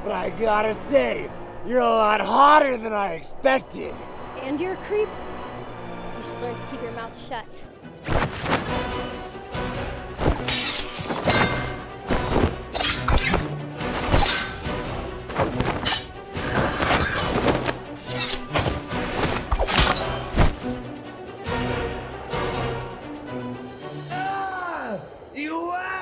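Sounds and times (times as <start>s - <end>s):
background music: 0.0s - 26.0s
fight hits and whacks: 8.1s - 8.8s, 10.2s - 20.7s.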